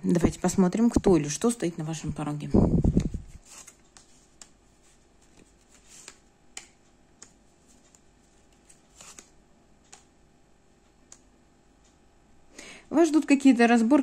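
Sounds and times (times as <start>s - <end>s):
cards snapping and tapping: 5.3s - 9.3s, 9.9s - 10.1s.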